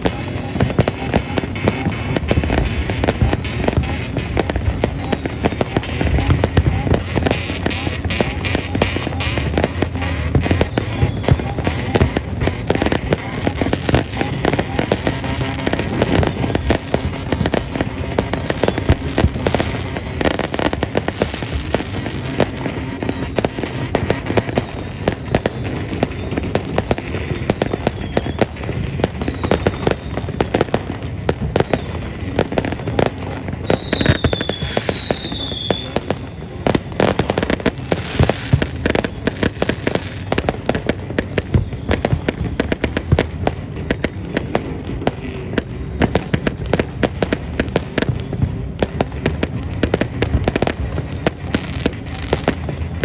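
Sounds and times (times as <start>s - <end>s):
fireworks bangs and crackles: 0.0s - 53.0s
high firework whistle: 0.0s - 53.0s.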